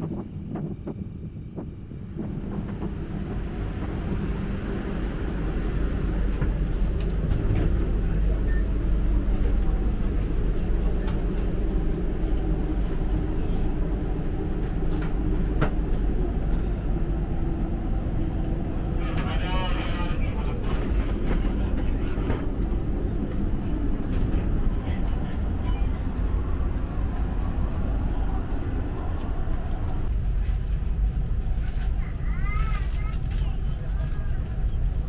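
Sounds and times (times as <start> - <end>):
electric train rumbling: 0.0 - 35.0.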